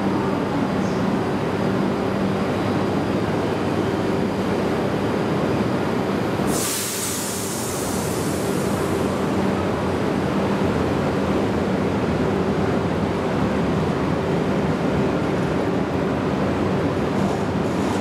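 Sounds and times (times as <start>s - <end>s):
electric train hum: 0.0s - 18.0s
rumble of passing train cars: 0.0s - 18.0s
loud hiss: 6.5s - 9.3s.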